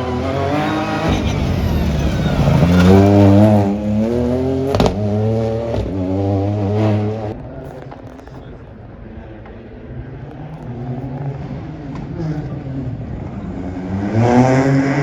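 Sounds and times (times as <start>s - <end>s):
sharp bangs: 0.0s - 6.0s
car engine accelerating hard: 0.0s - 7.6s, 10.6s - 15.0s.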